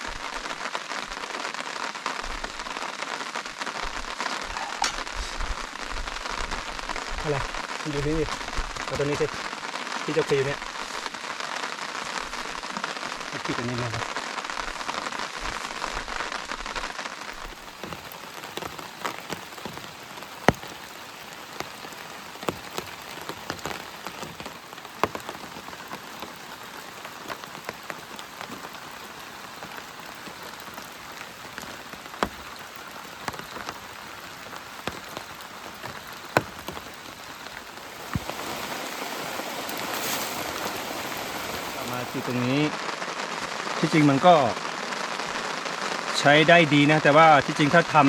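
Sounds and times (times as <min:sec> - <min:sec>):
steady rain falling: 0:00.0 - 0:48.0
heavy drops ticking close by: 0:17.1 - 0:29.0, 0:29.6 - 0:42.8.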